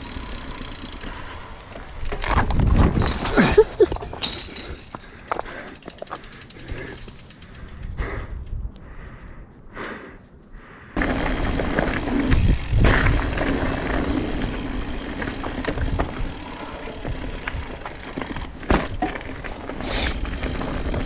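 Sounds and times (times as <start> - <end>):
wind rushing on microphone: 11.0 - 14.6.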